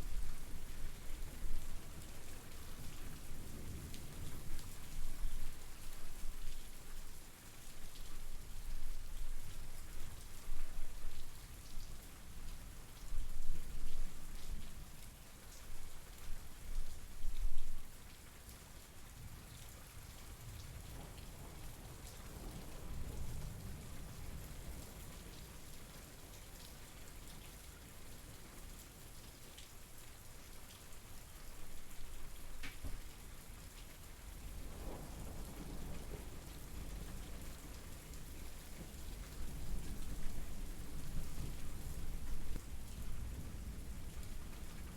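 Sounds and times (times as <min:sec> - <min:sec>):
rain falling: 0:00.0 - 0:44.9
raindrops ticking on a surface: 0:00.1 - 0:44.9.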